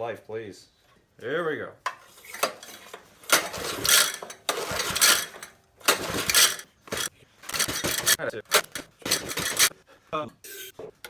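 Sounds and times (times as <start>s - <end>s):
recoil pull-starter ratcheting: 3.3s - 9.7s
small engine turning over: 3.3s - 9.7s.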